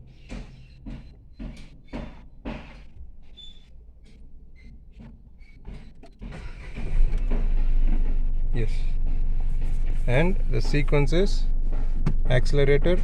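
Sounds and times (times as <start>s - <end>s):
scattered clicks and knocks: 0.0s - 3.1s, 4.0s - 13.0s
car engine starting and idling: 6.0s - 13.0s.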